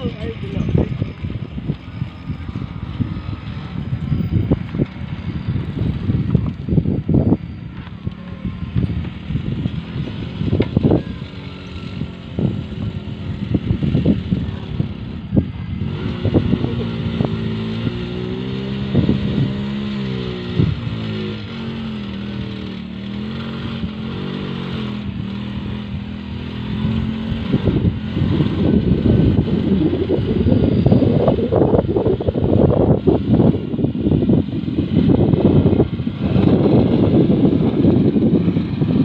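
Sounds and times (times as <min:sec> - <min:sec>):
small motorcycle engine climbing: 0:00.0 - 0:39.0
wind buffeting microphone: 0:00.0 - 0:39.0.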